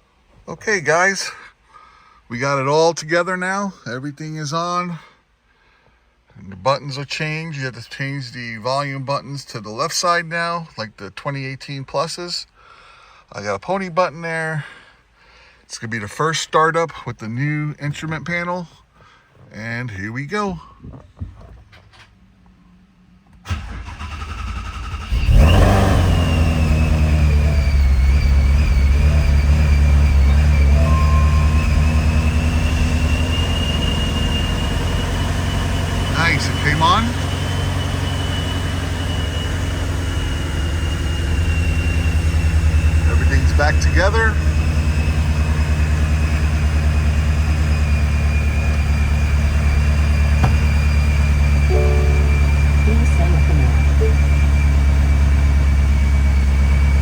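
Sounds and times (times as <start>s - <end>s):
car engine idling loudly: 25.1s - 57.0s
high whine: 26.0s - 45.2s, 50.2s - 55.8s.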